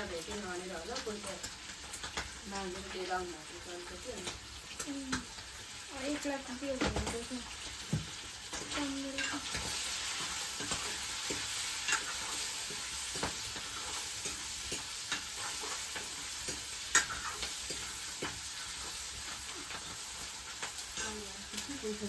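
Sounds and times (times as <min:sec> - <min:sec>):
food sizzling in a pan: 0:00.0 - 0:22.0
spoon scraping a pan: 0:07.6 - 0:21.8.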